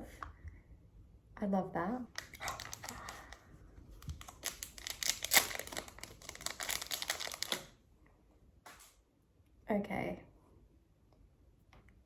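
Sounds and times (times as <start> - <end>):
packaging crackling and rustling: 2.2 - 7.8.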